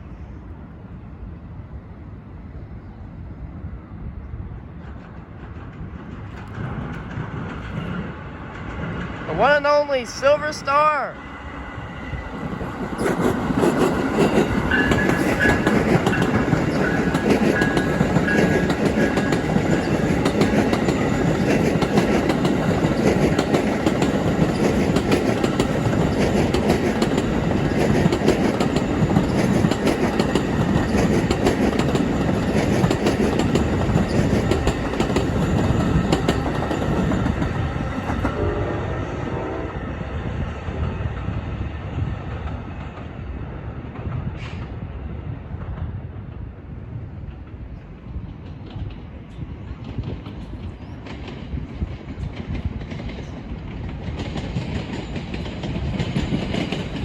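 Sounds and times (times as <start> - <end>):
train wheels clattering: 12.5 - 38.4, 47.3 - 57.0.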